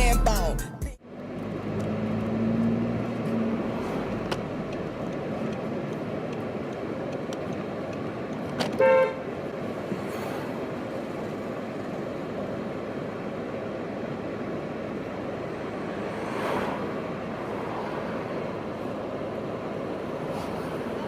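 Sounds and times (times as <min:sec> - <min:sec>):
street traffic noise: 0:00.0 - 0:21.0
car horn toot: 0:08.6 - 0:09.3.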